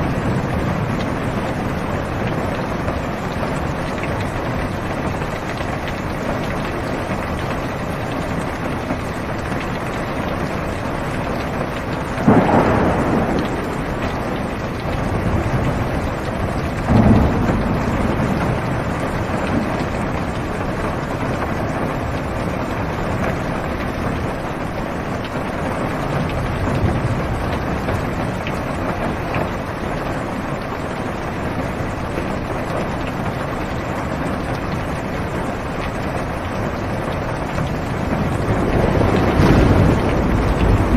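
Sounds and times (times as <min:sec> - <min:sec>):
rain on car roof: 0:00.0 - 0:40.9
thunder rumbling: 0:00.0 - 0:40.9
thunderclap: 0:11.0 - 0:30.7, 0:34.7 - 0:40.9.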